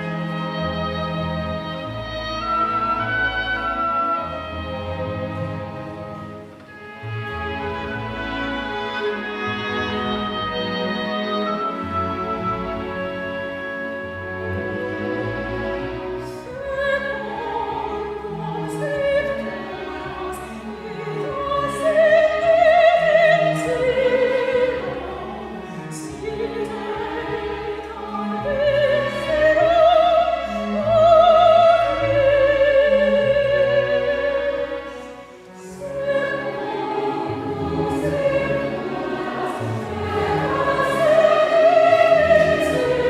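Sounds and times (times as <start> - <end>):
chamber orchestra: 0.0 - 43.0
classical solo voice singing: 0.0 - 43.0.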